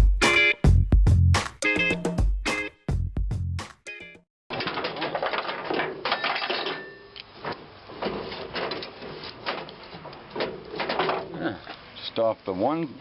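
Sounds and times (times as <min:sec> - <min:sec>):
metallic clicking and clattering: 0:04.5 - 0:11.8.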